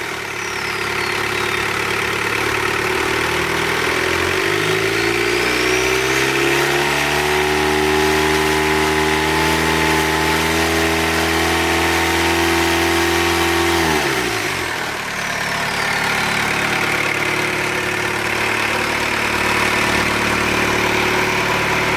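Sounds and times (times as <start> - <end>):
diesel engine revving and idling: 0.0 - 21.9.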